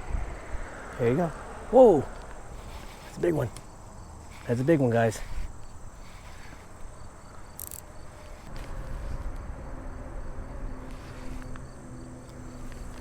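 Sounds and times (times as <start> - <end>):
insects chirring: 0.0 - 13.0
low outdoor rumble: 8.1 - 13.0.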